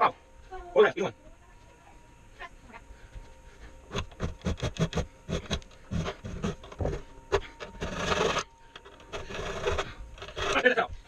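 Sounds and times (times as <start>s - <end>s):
long rasping scrape: 3.8s - 10.9s
scraping and knocking on wood: 3.9s - 10.6s.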